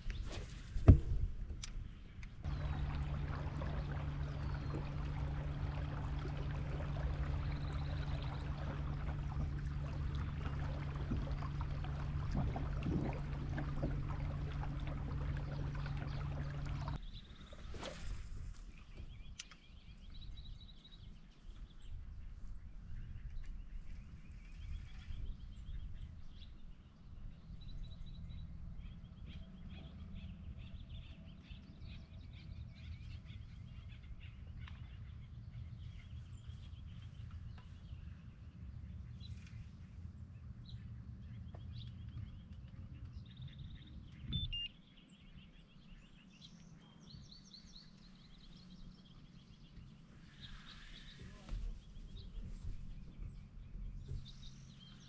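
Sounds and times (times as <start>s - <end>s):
low steady rumble: 0.0s - 20.7s, 24.0s - 46.1s
birds chirping: 1.6s - 22.0s, 40.7s - 55.0s.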